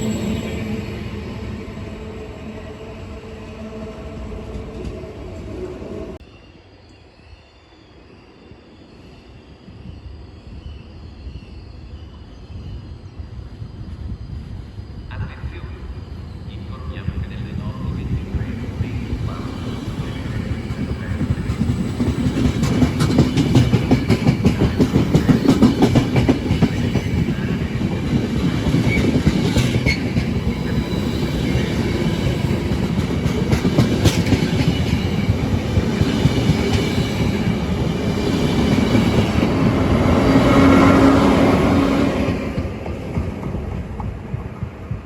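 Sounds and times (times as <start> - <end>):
locomotive hum: 0.0 - 6.2, 16.2 - 45.0
train wheels clattering on rails: 19.0 - 45.0.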